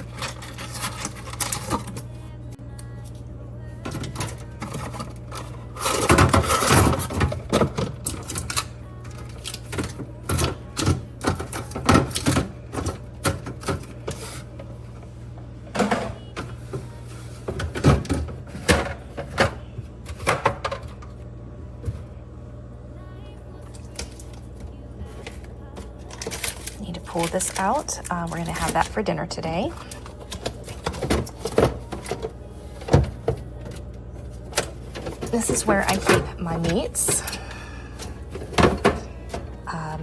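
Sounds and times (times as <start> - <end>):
refrigerator hum: 0.0 - 40.0
food containers clattering on shelves: 3.8 - 14.7, 15.7 - 21.2, 25.1 - 40.0.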